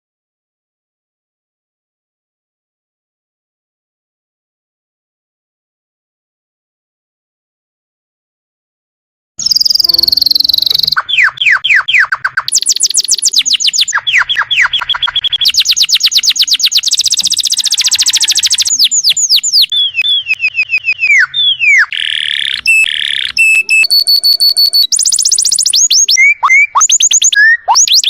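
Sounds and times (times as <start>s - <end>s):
canary singing: 9.4s - 28.0s.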